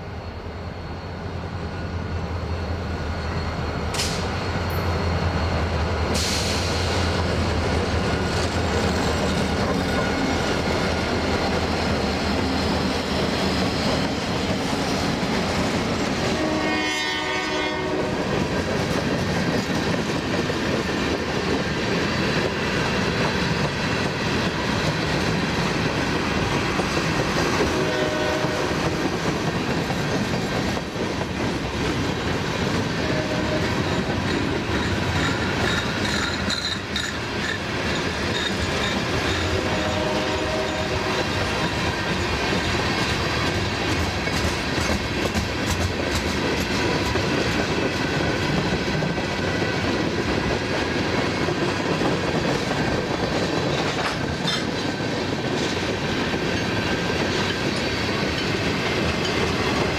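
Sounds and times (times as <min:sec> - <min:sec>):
wheels clacking over rail joints: 0:18.3 - 0:39.9, 0:40.6 - 0:49.2.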